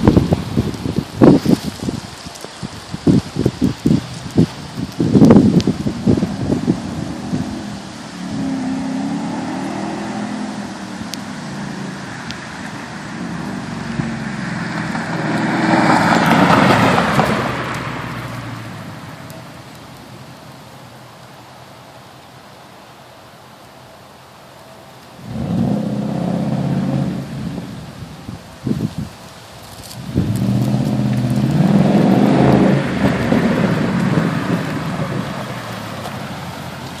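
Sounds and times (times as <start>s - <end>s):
car driving past: 7.0s - 19.8s, 30.1s - 37.0s.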